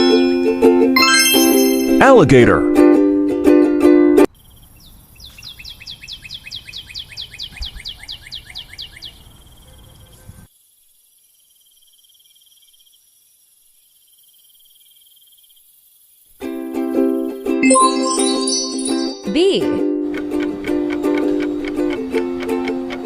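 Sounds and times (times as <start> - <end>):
rapid trill of high chirps: 17.6 - 19.3.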